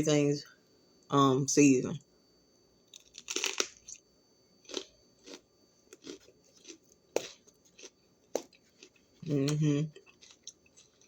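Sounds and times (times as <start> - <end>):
crunching bell pepper: 2.8 - 11.0.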